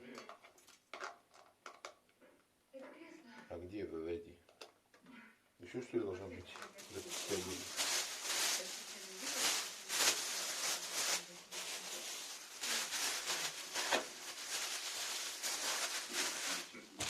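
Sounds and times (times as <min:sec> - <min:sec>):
packaging rustling: 0:06.6 - 0:17.0.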